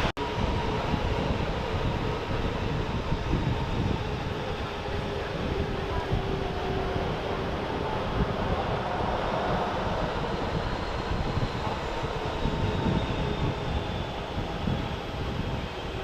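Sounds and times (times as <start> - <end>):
faint high turbine whine: 0.0 - 16.0
jet engines rumbling: 0.0 - 16.0.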